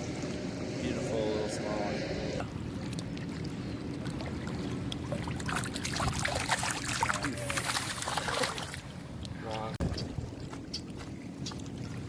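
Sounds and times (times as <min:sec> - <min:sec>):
steady low hum: 0:00.0 - 0:05.8
water splashing and trickling: 0:02.4 - 0:12.0.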